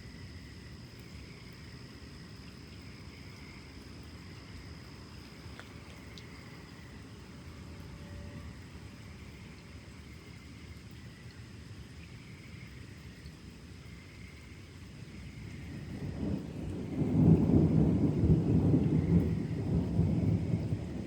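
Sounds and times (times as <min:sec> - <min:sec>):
insects trilling: 0:00.0 - 0:21.0
thunder rumble: 0:15.5 - 0:21.0.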